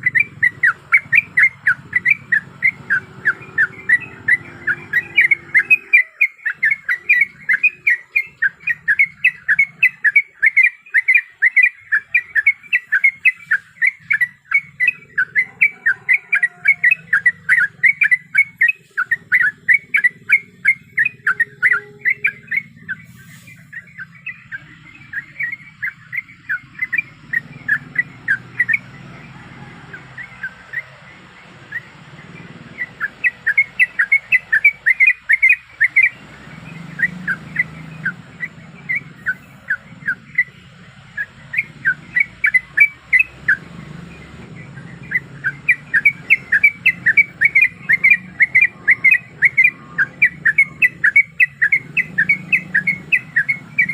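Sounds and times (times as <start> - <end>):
bird calling in sharp notes: 0.0 - 53.9.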